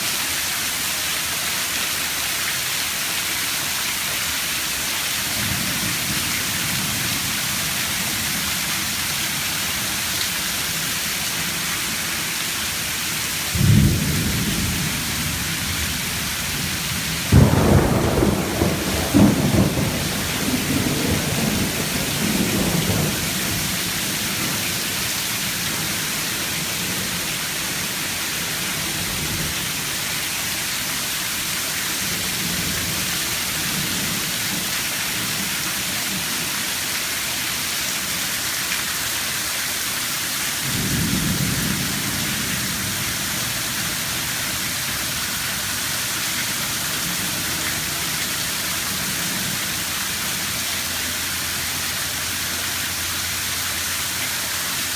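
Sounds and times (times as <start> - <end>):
rain falling: 0.0 - 54.9
thunder rumbling: 13.4 - 30.1.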